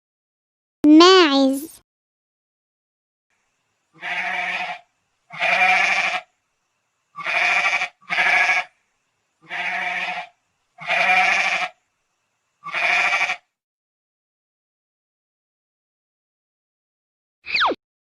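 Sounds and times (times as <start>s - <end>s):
goat bleating: 4.0s - 6.2s, 7.2s - 8.7s, 9.4s - 11.7s, 12.7s - 13.4s.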